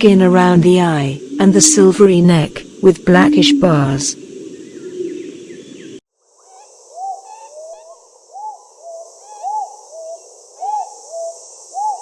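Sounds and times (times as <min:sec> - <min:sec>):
steady high hiss: 0:00.0 - 0:12.0
faint bird chirps: 0:02.6 - 0:12.0
pigeon cooing: 0:02.6 - 0:12.0.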